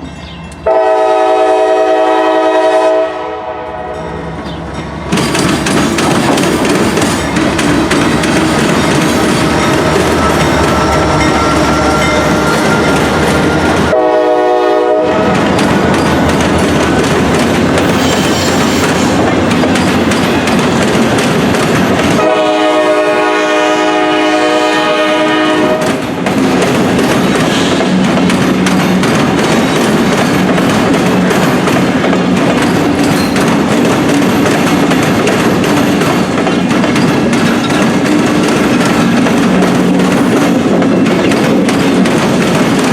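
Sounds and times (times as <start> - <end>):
train rumbling past: 0.0 - 42.9
locomotive horn blast: 0.6 - 4.2, 9.7 - 15.9, 22.2 - 25.9.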